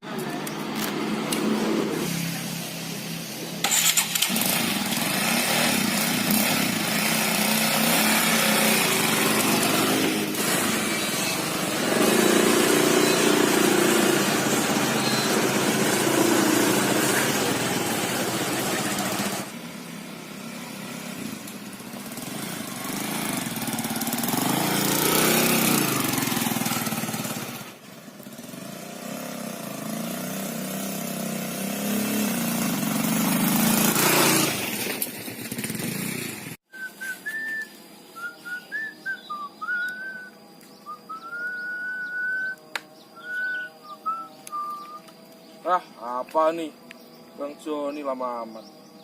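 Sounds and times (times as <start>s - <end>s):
motorbike engine passing: 0.2s - 36.6s, 37.3s - 49.0s
short high whistling notes: 36.7s - 42.6s.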